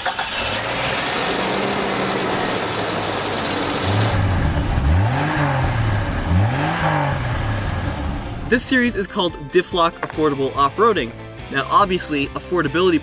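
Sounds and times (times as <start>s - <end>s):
car engine idling and revving: 0.0s - 8.6s.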